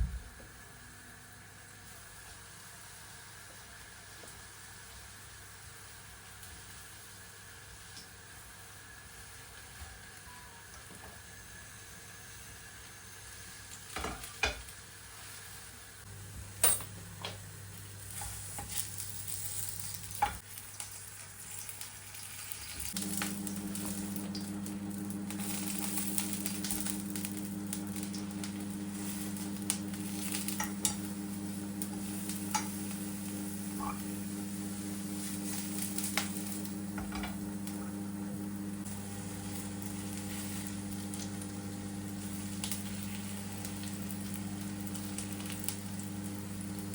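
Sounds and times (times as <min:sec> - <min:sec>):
steady electric hum: 0:00.0 - 0:02.7, 0:16.1 - 0:46.9
food sizzling in a frying pan: 0:01.0 - 0:09.8, 0:11.0 - 0:46.9.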